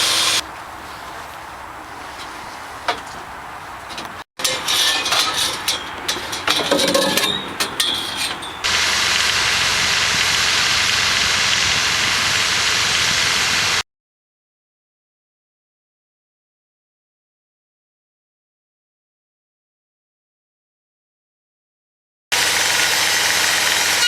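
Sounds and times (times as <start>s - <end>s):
sawmill knocking and clattering: 0.0s - 0.4s, 2.2s - 13.8s, 22.4s - 24.0s
sawmill machine running: 0.0s - 13.8s, 22.3s - 24.0s.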